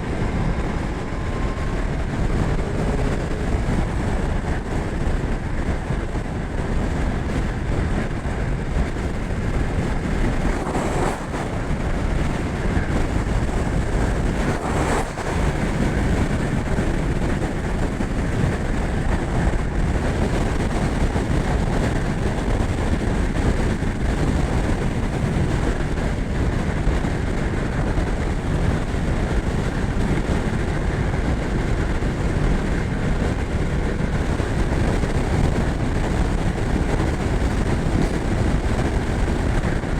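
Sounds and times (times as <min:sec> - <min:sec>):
motorcycle engine cruising: 0:00.0 - 0:19.6
road and wind noise: 0:00.0 - 0:39.9.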